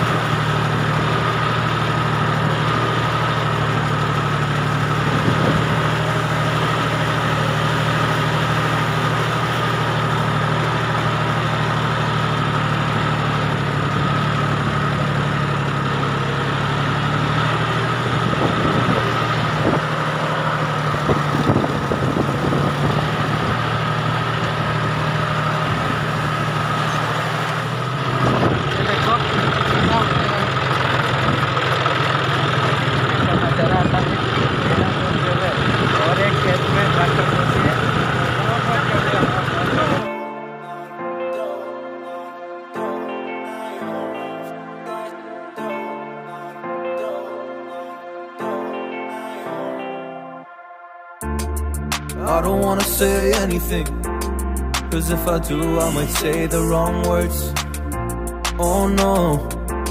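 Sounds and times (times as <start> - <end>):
tractor engine running: 0.0 - 40.1, 51.2 - 59.9
steady high tone: 51.1 - 59.9.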